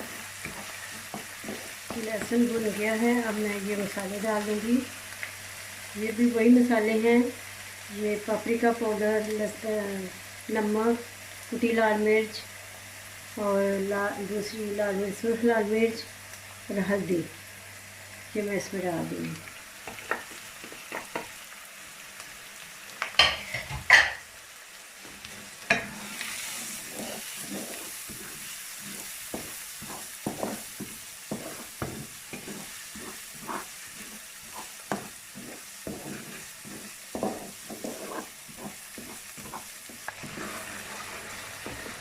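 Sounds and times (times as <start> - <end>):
spoon stirring and scraping pan: 0.0 - 5.6, 19.8 - 21.5, 23.0 - 24.3, 25.0 - 42.0
spices sizzling in hot oil: 0.0 - 42.0
spoon knocking against pan: 23.2 - 24.2.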